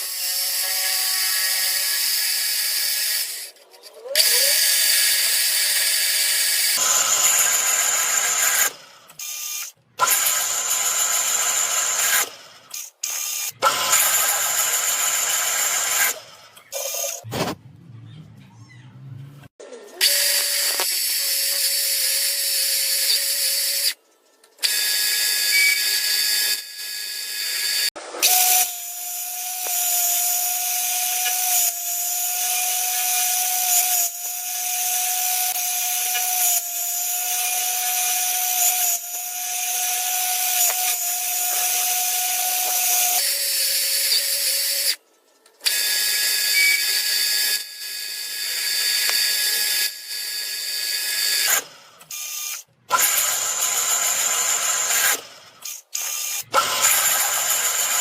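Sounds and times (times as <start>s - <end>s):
machine tool cutting metal: 0.0s - 17.3s, 45.6s - 58.0s.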